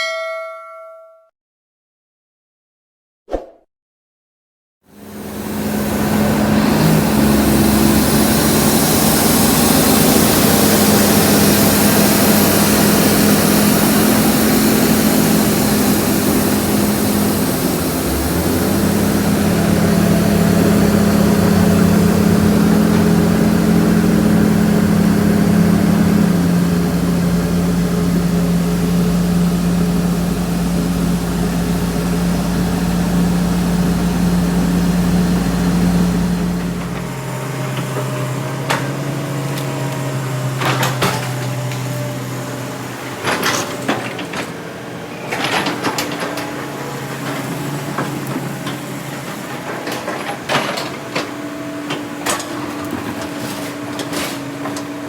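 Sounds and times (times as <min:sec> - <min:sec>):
diesel engine of earthmoving machine: 0:04.9 - 0:55.0.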